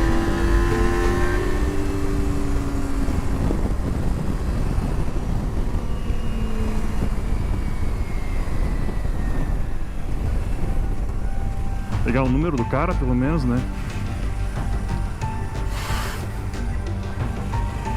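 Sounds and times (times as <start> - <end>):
motorcycle engine: 0.0 - 5.6
wind rushing over microphone: 0.0 - 17.9.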